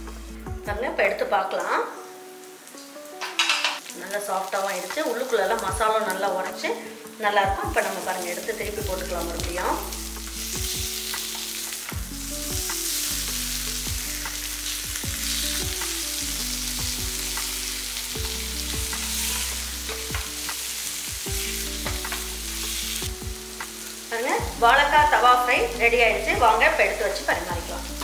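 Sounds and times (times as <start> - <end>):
food sizzling in oil: 0.0 - 28.0.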